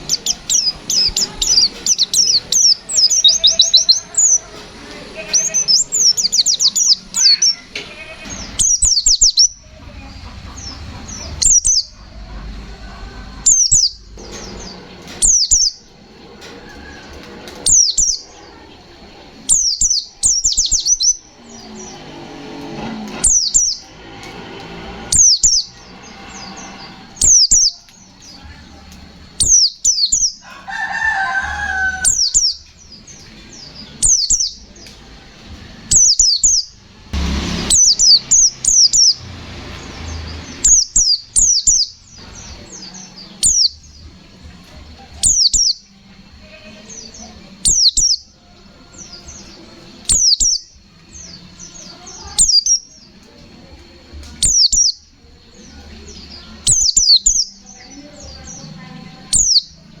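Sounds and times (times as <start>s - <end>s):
bird singing whistled notes: 0.0s - 9.8s, 10.6s - 16.0s, 19.4s - 22.2s, 29.3s - 30.5s, 31.2s - 34.9s, 40.1s - 44.2s, 45.2s - 45.9s, 46.7s - 53.2s, 54.4s - 60.0s
noisy rustle: 0.0s - 60.0s.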